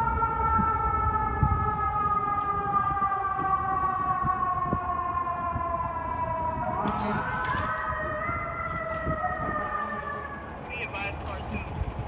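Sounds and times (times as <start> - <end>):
fire truck siren wailing: 0.0 - 12.0
low engine and road rumble: 0.0 - 12.0.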